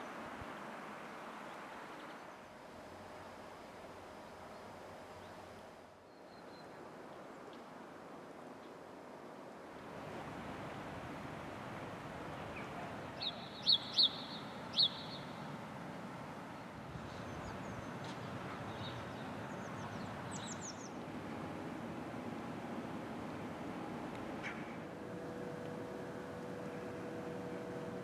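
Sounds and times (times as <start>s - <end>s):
small bird chirping: 12.6s - 15.4s.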